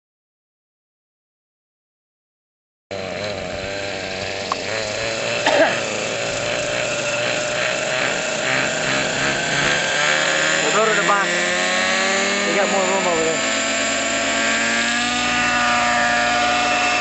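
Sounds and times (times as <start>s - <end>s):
model airplane engine running: 2.9s - 17.0s.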